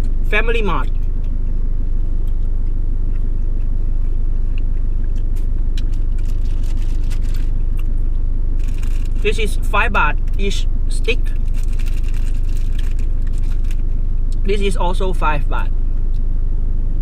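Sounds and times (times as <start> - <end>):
car engine idling: 0.0 - 16.2
plastic bag crinkling: 5.8 - 7.6, 8.6 - 9.3, 11.4 - 13.9.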